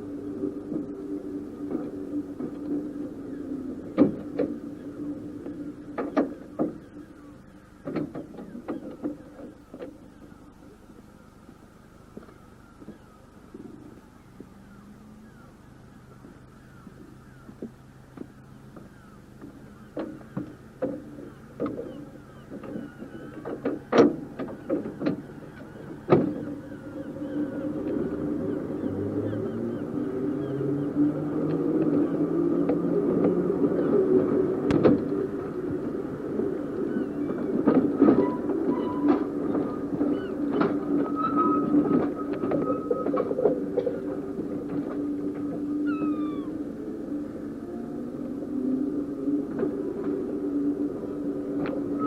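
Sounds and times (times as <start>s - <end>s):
electric tram motor hum: 0.0s - 52.0s.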